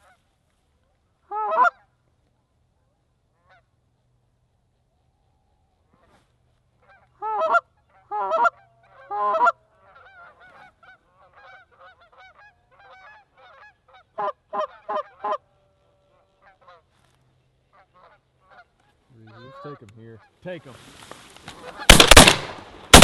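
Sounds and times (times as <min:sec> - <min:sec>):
geese honking: 0:01.3 - 0:01.8, 0:06.8 - 0:16.9, 0:17.6 - 0:20.4.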